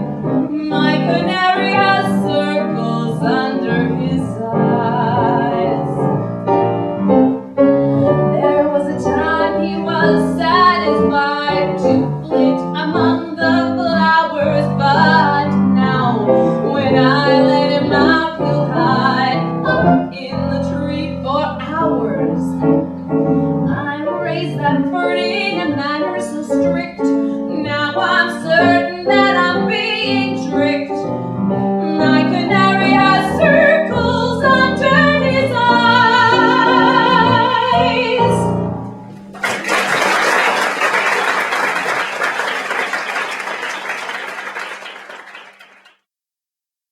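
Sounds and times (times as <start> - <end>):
woman singing: 0.0 - 6.1, 8.0 - 22.7, 23.6 - 31.1, 31.8 - 38.6
piano accompaniment: 0.0 - 42.4.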